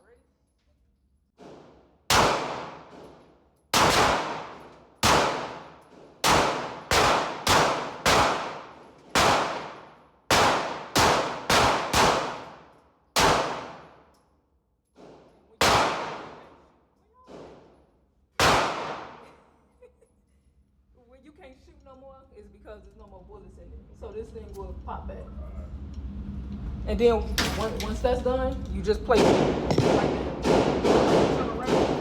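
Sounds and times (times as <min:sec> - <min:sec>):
pistol shots with echo: 0:01.4 - 0:14.0, 0:15.6 - 0:16.6, 0:18.4 - 0:19.3, 0:29.2 - 0:32.0.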